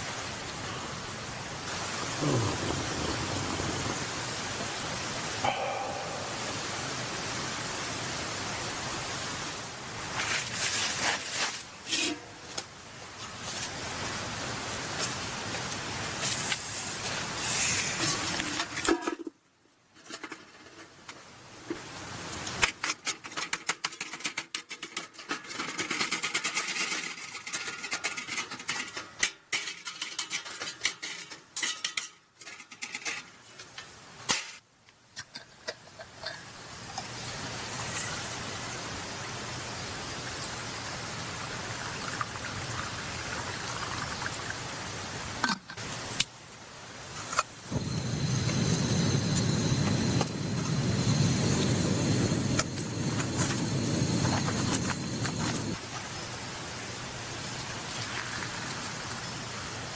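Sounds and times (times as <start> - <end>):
steady rushing noise: 1.3 - 10.1, 47.6 - 55.9.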